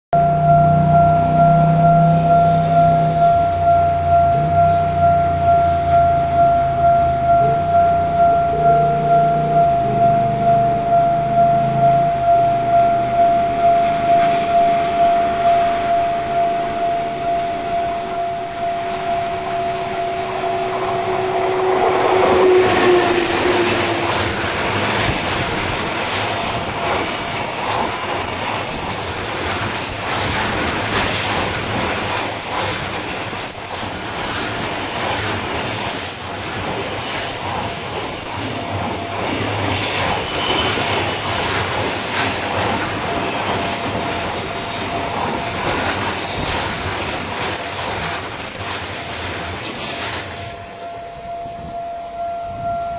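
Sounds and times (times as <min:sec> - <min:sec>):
steady tone: 0:00.1 - 0:27.4
locomotive passing: 0:00.2 - 0:51.7
wheels clicking over rail joints: 0:23.1 - 0:50.4.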